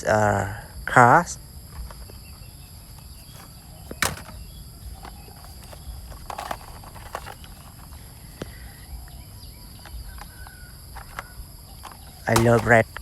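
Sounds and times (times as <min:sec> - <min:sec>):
faint high hum: 0:00.0 - 0:13.0
knocks and rustles of handling: 0:02.9 - 0:08.6, 0:11.0 - 0:13.0.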